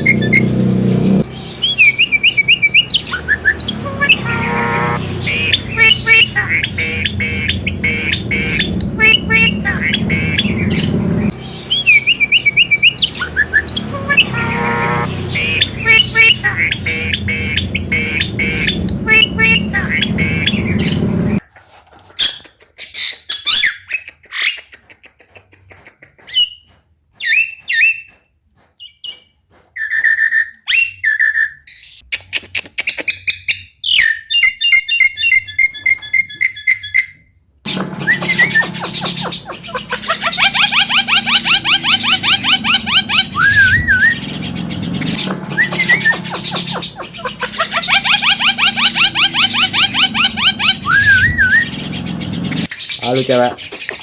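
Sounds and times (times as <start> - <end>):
myna chattering and squawking: 1.4 - 21.5, 37.7 - 54.0.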